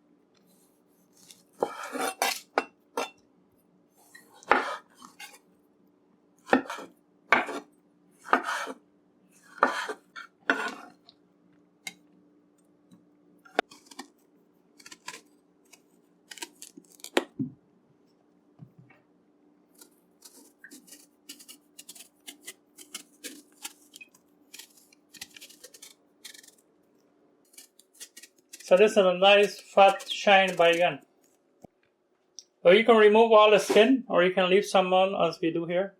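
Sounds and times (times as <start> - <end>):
faint steady hum: 0.0 - 35.9
knife clicks and scrapes: 1.1 - 2.5, 9.4 - 11.0, 13.5 - 14.1, 14.8 - 17.2, 19.8 - 26.6, 27.5 - 31.4.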